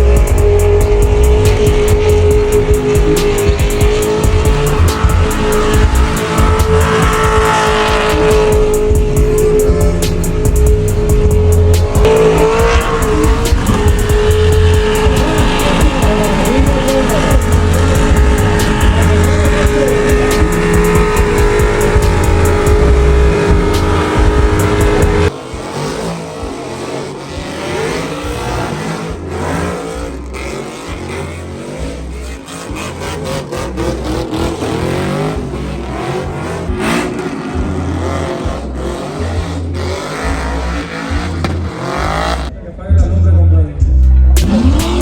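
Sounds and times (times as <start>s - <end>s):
loud music with thumping bass: 0.0s - 45.0s
vehicle engines revving: 0.0s - 45.0s.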